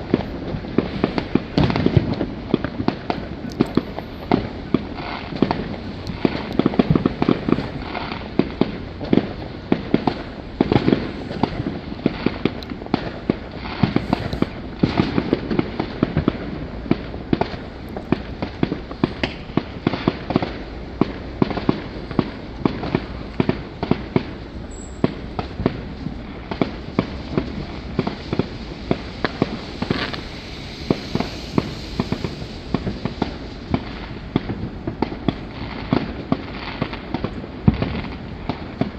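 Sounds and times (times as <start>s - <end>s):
fireworks bangs and crackles: 0.0s - 38.9s
low rumble: 25.7s - 34.9s.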